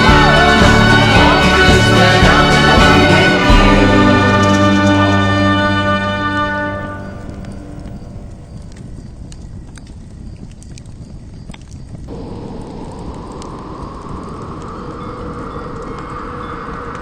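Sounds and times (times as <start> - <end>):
steady rushing noise: 0.0 - 5.8, 12.1 - 17.0
campfire crackling and popping: 0.0 - 17.0.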